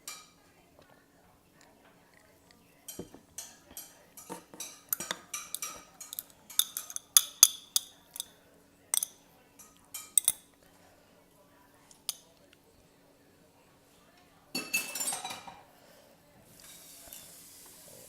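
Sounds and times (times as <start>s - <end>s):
utensils clinking against a bowl: 2.5s - 10.6s, 14.5s - 15.7s, 16.6s - 17.5s.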